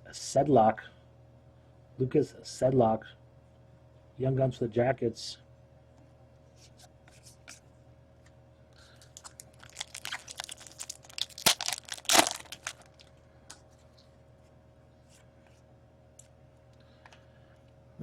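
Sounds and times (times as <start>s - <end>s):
foil wrapper crinkling: 8.8s - 13.1s
loud wrapper rips: 9.0s - 13.1s.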